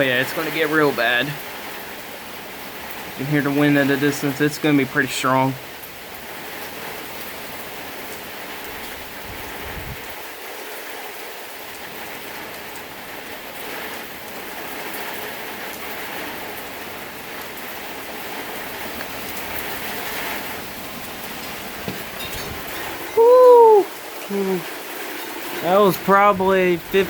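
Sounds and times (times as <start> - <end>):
heavy rain: 0.0 - 27.0
gusting wind: 6.0 - 10.6, 14.6 - 27.0
low thunder rumble: 24.8 - 27.0.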